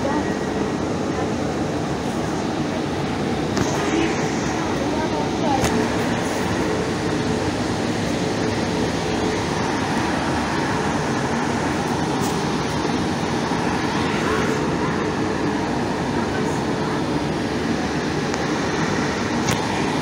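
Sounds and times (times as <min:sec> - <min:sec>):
train running noise: 0:00.0 - 0:20.0.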